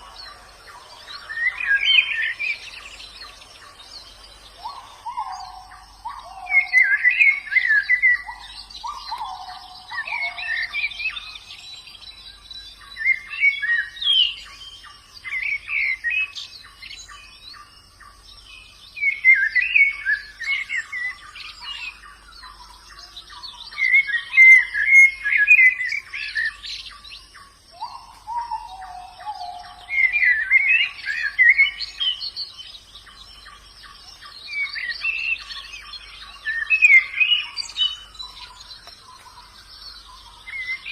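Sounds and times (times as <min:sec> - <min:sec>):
birds twittering: 0:00.0 - 0:40.9
faint high-pitched hiss: 0:00.0 - 0:40.9
lower falling bird call: 0:27.8 - 0:40.9.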